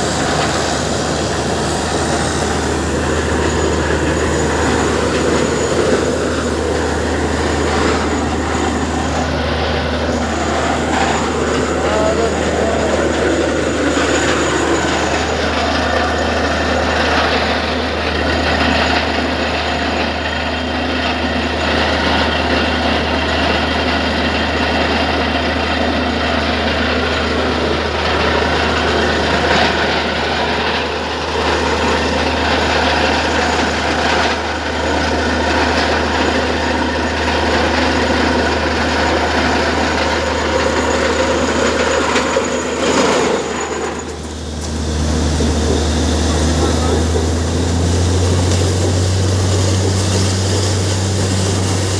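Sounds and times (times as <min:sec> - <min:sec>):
drilling rig running: 0:00.0 - 0:51.9.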